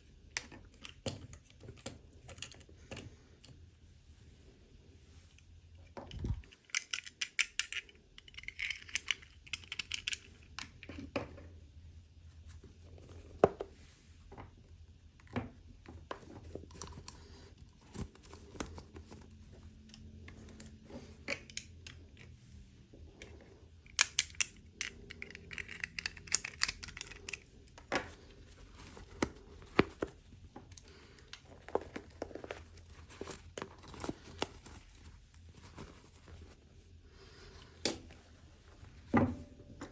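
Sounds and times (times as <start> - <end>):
plastic parts clicking: 6.0 - 11.3, 19.8 - 22.3, 23.2 - 28.2.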